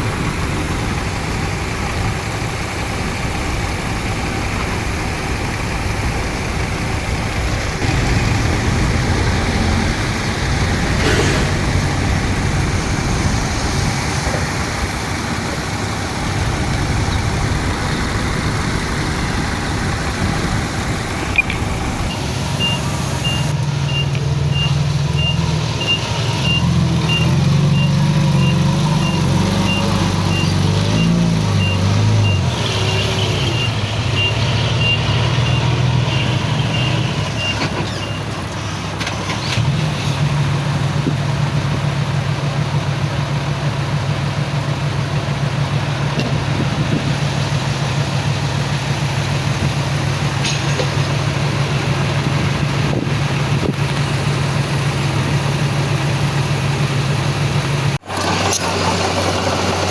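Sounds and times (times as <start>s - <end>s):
heavy diesel engine working: 0.0s - 59.9s
reversing alarm beeping: 21.3s - 38.3s.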